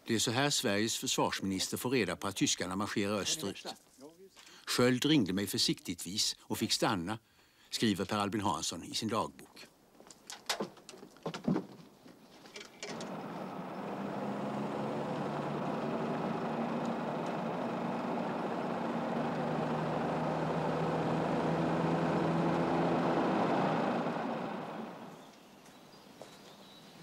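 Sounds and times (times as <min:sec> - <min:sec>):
car engine running: 0:12.9 - 0:25.2.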